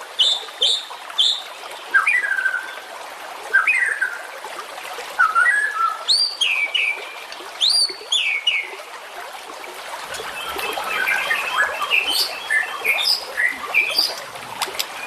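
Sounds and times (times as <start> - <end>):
songbird whistling phrases: 10.3 - 14.2.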